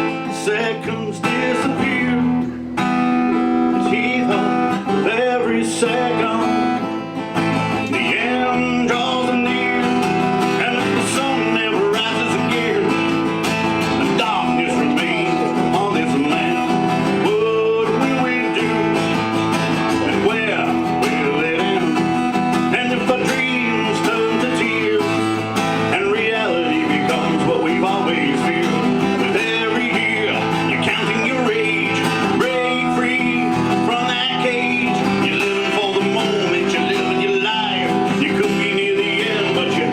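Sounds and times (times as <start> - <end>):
acoustic guitar song: 0.0 - 39.9.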